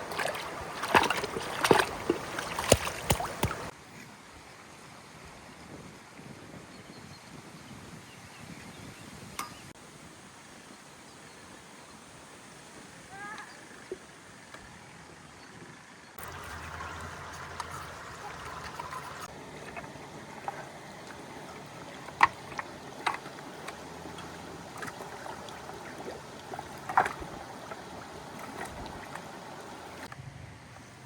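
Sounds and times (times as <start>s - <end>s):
rushing water: 0.0s - 3.8s, 16.2s - 30.1s.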